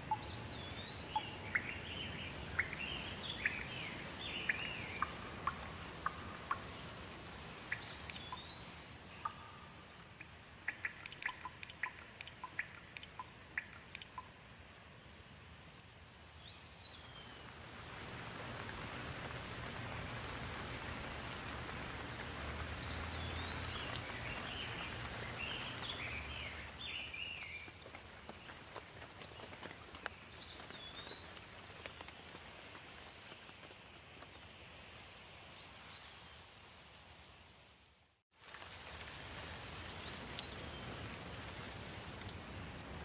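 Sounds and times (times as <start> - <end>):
birds chirping: 0.0 - 14.3, 16.4 - 32.1
steady rain falling: 0.0 - 43.0.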